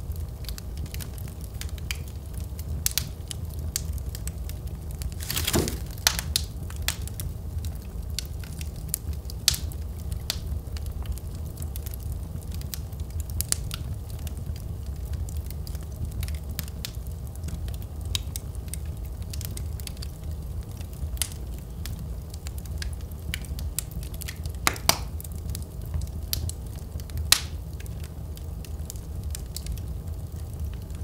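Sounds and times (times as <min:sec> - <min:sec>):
low rumble of flames: 0:00.0 - 0:31.0
wood fire crackling: 0:00.0 - 0:31.0
sharp pops of burning wood: 0:00.4 - 0:10.4, 0:20.8 - 0:30.9.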